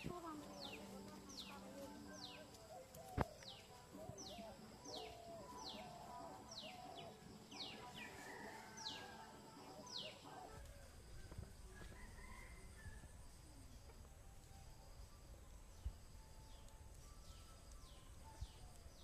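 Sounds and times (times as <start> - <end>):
lower wavering calls: 0.7 - 11.4.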